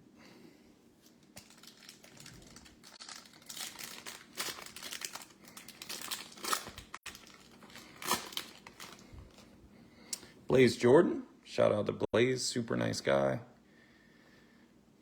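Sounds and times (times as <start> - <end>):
wrapper crinkling: 1.2 - 9.5.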